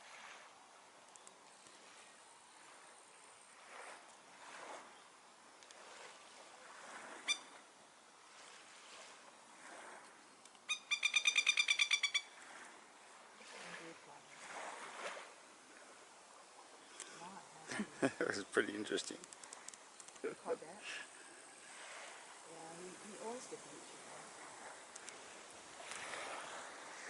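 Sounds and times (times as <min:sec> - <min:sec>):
plover call: 0:07.2 - 0:07.6, 0:10.7 - 0:12.4
rattling bird alarm call: 0:10.7 - 0:12.3.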